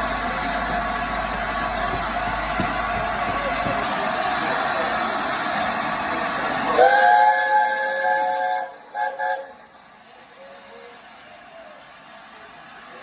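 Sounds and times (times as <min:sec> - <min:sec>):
loud steady rush of noise: 0:00.0 - 0:13.0
steam locomotive chime whistle: 0:06.7 - 0:09.6.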